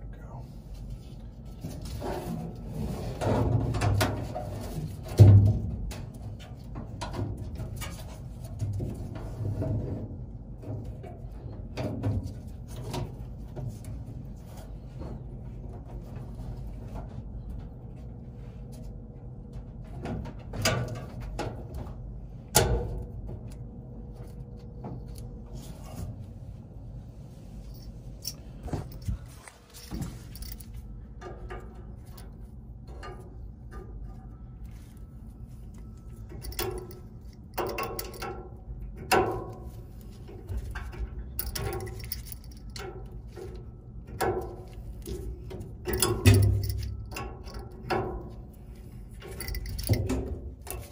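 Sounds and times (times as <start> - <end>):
steady low hum: 0.0 - 50.9
clicks and knocks of metal tools: 27.7 - 50.9.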